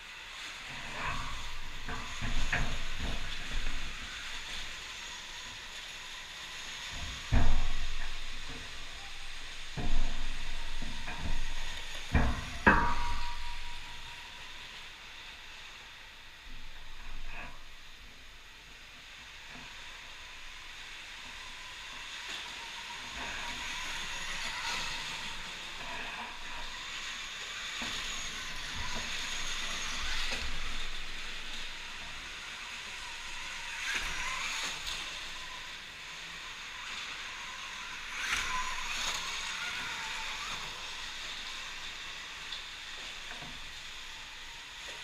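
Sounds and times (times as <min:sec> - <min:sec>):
faint electric motor whine: 0:00.0 - 0:45.0.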